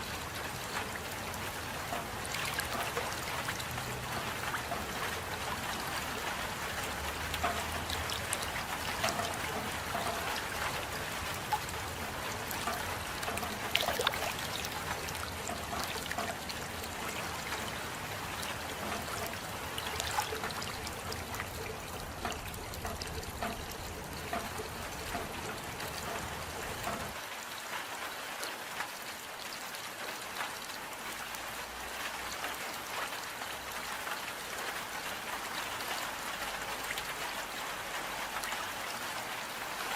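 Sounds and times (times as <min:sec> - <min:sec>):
close water drips: 0:00.0 - 0:27.2
steady rain: 0:00.0 - 0:39.9
trickling water: 0:00.0 - 0:39.9.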